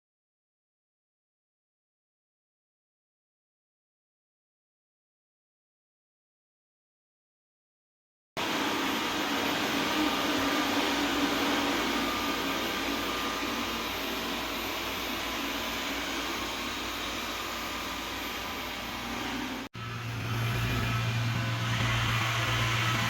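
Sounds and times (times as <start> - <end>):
robot vacuum cleaner running: 8.4 - 23.0.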